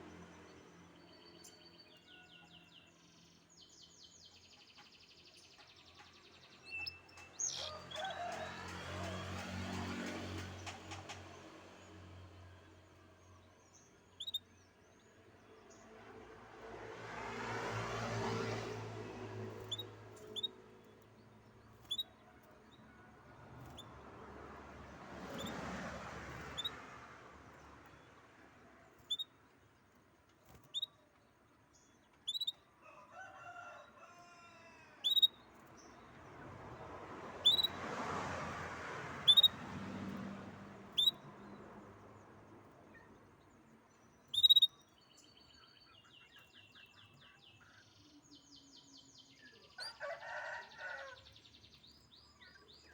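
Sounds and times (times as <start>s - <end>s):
rooster crowing: 7.6s - 9.2s, 32.8s - 35.1s, 49.7s - 51.3s
songbird chirping: 25.0s - 52.9s
bird trilling rapidly: 37.4s - 37.8s, 39.2s - 39.6s, 40.9s - 41.3s, 44.3s - 44.8s.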